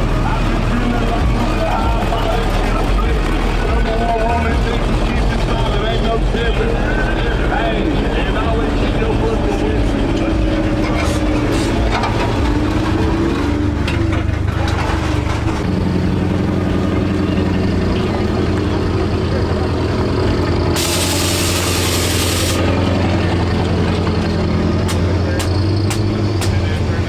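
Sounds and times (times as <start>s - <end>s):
vehicle engine idling: 0.0s - 27.0s
sharp hiss: 20.8s - 22.6s.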